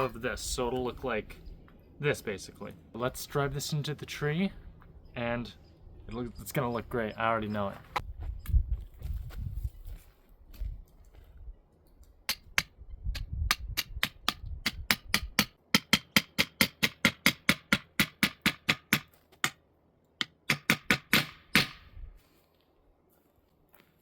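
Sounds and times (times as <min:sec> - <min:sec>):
hammer striking steel bar: 0:13.5 - 0:19.6, 0:20.2 - 0:21.8.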